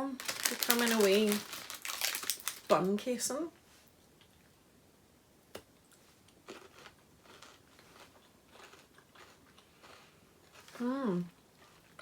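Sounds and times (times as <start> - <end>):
chewing crunchy chocolate: 6.4 - 12.0.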